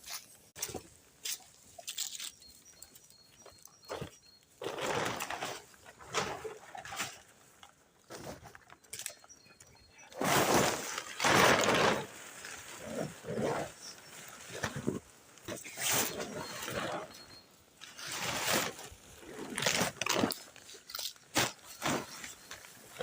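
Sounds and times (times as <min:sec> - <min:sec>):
plastic sheeting crumpling: 0:10.1 - 0:14.9, 0:17.9 - 0:23.0.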